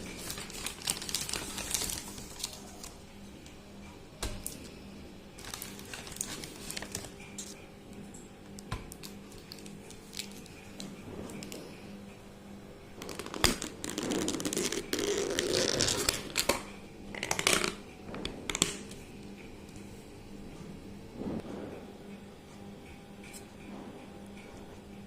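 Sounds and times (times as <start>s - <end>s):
rustling and scraping: 9.4s - 11.8s.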